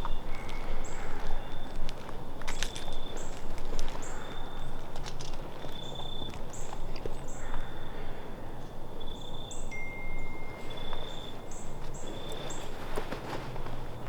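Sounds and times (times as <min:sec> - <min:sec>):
bird calling: 0:05.7 - 0:14.0
light rustles or steps: 0:10.6 - 0:14.0.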